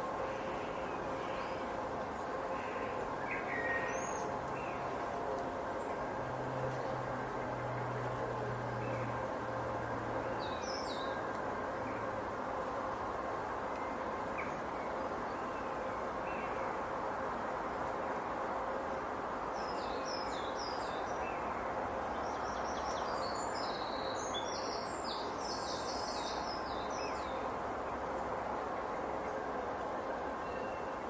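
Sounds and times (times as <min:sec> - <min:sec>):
breeze in trees: 0:00.0 - 0:31.0
songbird twittering: 0:02.6 - 0:04.8.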